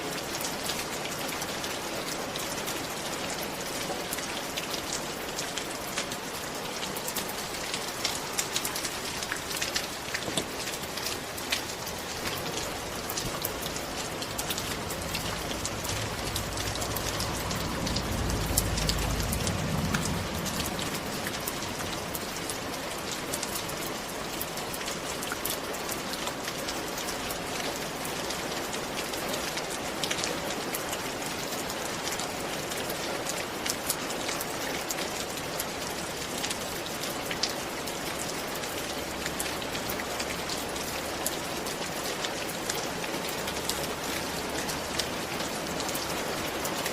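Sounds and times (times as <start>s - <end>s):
rain ticking on a hard surface: 0.0s - 46.9s
low rumble: 13.0s - 23.0s.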